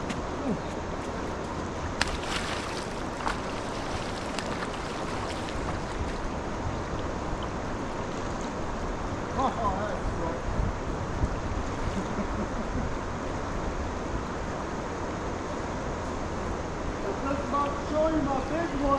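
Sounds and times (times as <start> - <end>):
river water rushing: 0.0 - 9.4.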